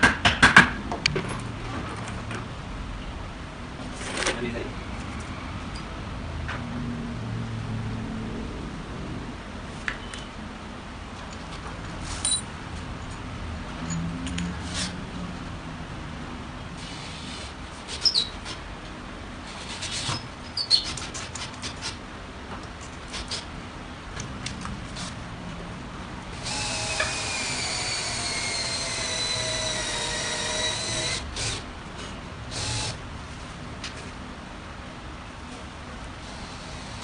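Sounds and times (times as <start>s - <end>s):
power drill whine: 26.4s - 31.6s, 32.5s - 33.0s.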